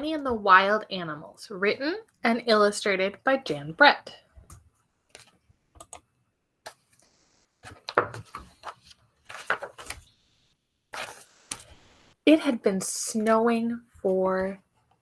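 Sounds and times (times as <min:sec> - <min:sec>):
book pages turning: 0:06.7 - 0:10.2, 0:10.9 - 0:12.0
knocks and paper noise: 0:07.6 - 0:10.1.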